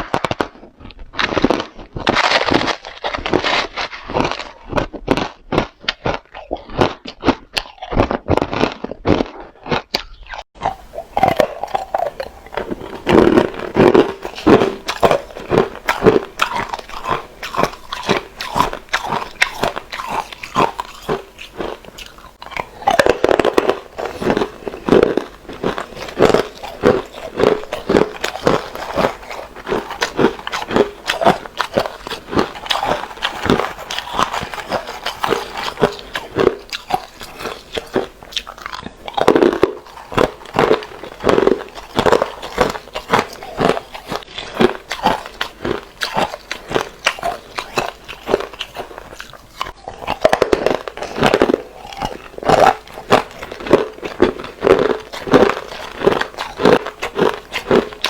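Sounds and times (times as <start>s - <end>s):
ice being chewed crunching: 0.0s - 58.0s.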